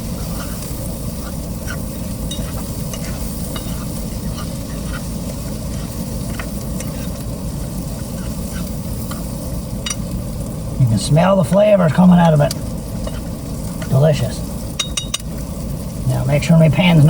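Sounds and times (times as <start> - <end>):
food sizzling in a frying pan: 0.0 - 17.0
utensil clicking against pan: 0.3 - 5.1.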